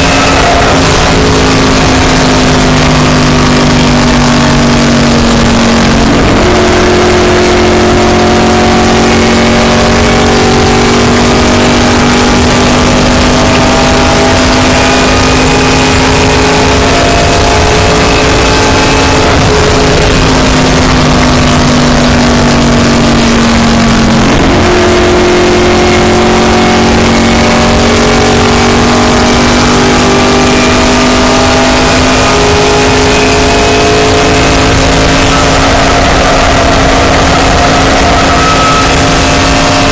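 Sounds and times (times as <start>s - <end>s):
race car engine at speed: 0.0s - 39.9s.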